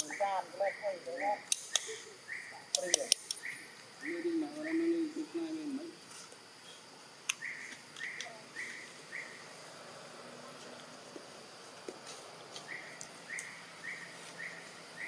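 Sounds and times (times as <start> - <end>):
faint outdoor background noise: 0.0 - 15.0
bird call: 6.6 - 9.4, 12.6 - 15.0.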